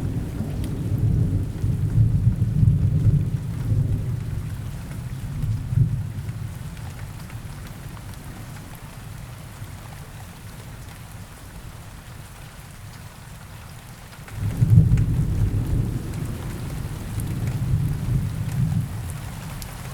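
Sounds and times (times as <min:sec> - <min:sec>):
rain falling: 0:00.0 - 0:19.9
thunder rumbling: 0:14.4 - 0:19.1.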